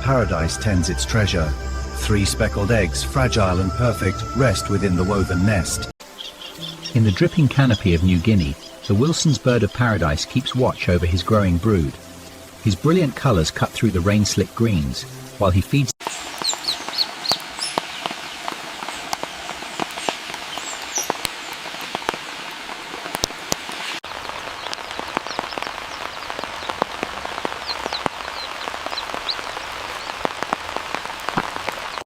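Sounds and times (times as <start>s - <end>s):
steady rain: 0.0s - 5.1s, 6.0s - 32.0s
high bird chirps: 6.0s - 11.3s, 16.1s - 18.2s, 24.5s - 30.3s.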